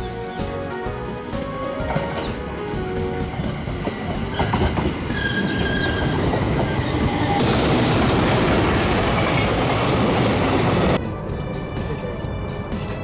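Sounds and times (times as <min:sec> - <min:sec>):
freight train rumbling past: 0:00.7 - 0:13.0
electric train squealing: 0:03.4 - 0:07.7.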